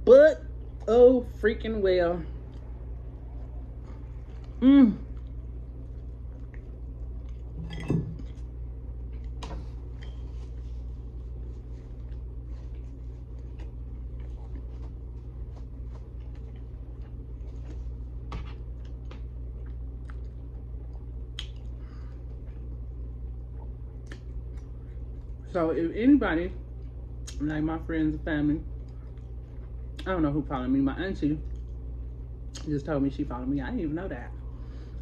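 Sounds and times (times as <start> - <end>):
steady low hum: 0.0 - 35.0
person chewing food: 2.4 - 7.6, 8.2 - 25.4, 28.7 - 30.0
mouth clicks and smacks: 21.3 - 21.7.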